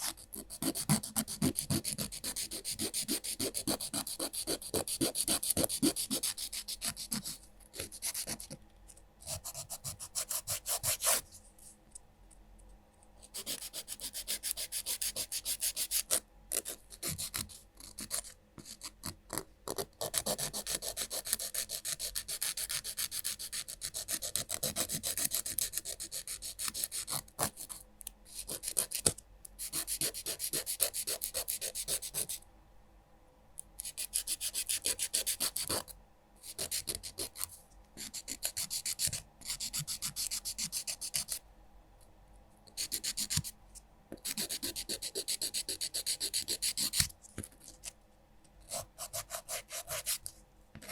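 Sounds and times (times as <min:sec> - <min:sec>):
nail file rasping: 0:00.0 - 0:08.5, 0:13.3 - 0:19.2, 0:44.2 - 0:47.1.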